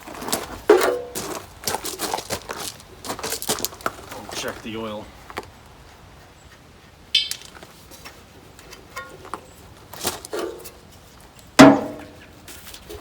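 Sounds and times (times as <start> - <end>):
metal clinks and knocks: 7.2 - 7.8.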